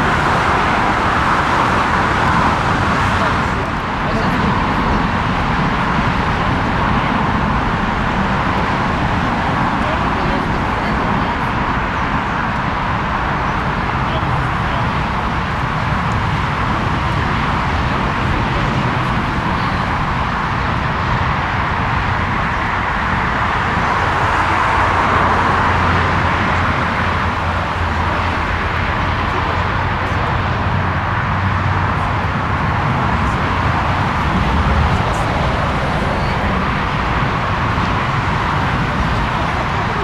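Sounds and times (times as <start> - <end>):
jet engine roar: 0.0 - 40.0.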